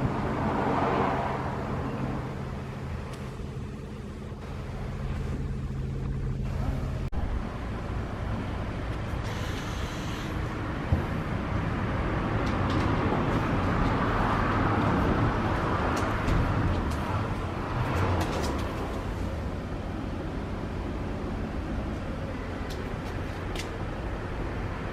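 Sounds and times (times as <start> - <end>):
road and wind noise: 0.0 - 24.9
car engine running: 1.6 - 10.0.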